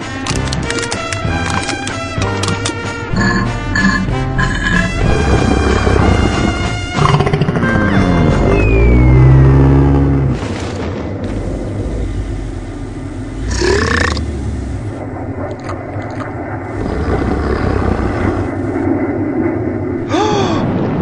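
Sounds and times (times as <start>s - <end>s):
falling pitch drone: 3.1s - 10.4s
loud low rumble: 3.1s - 21.0s
short rising sound effect: 7.6s - 10.4s.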